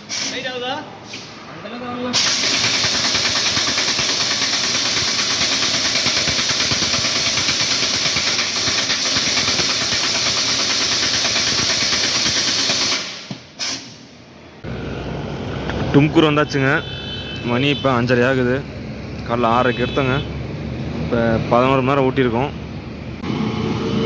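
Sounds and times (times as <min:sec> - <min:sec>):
pneumatic impact wrench: 0:00.0 - 0:00.4, 0:02.2 - 0:14.1.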